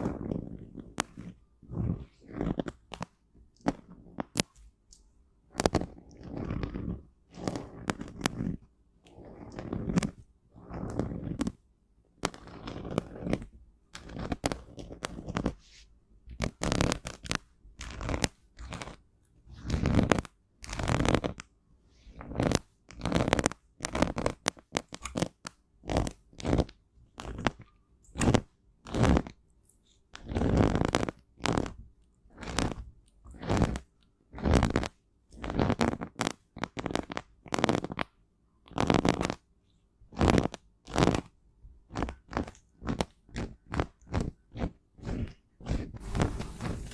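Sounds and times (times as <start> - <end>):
powder crunching and scraping: 46.0 - 46.9.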